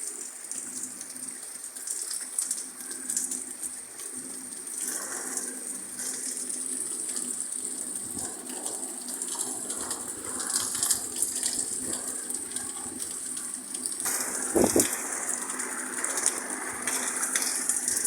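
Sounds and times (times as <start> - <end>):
heavy rain: 0.0 - 18.0
water gushing and splashing: 13.6 - 18.0.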